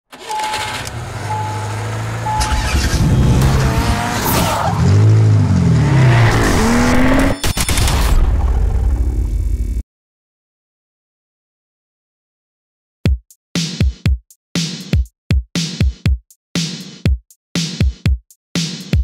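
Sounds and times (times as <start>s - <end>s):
car engine revving: 0.1s - 7.4s
short beeps: 0.3s - 1.7s, 2.3s - 3.0s.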